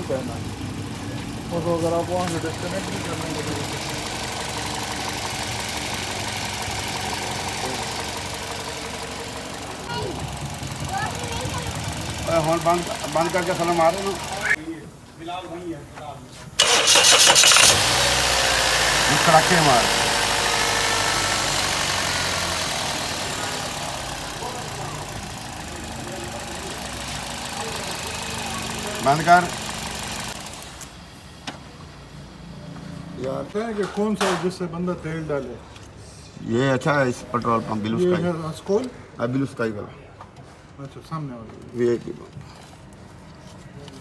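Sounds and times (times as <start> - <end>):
fast engine ticking: 0.0 - 14.6, 16.6 - 30.8
car engine idling: 0.0 - 15.9, 16.5 - 30.9.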